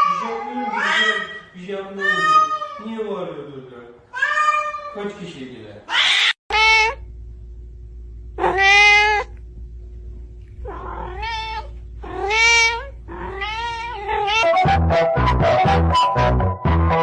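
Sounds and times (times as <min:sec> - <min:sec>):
cat meowing: 0:00.0 - 0:03.0, 0:04.1 - 0:05.0, 0:05.9 - 0:07.0, 0:08.4 - 0:09.3, 0:10.6 - 0:14.6
music with a steady beat: 0:14.5 - 0:17.0.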